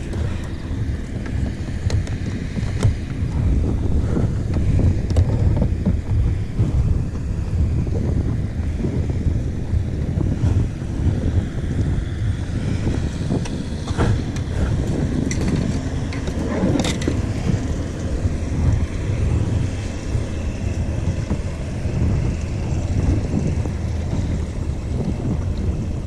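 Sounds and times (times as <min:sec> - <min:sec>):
water moving along hull: 0:00.0 - 0:26.0
wind buffeting microphone: 0:00.0 - 0:26.0.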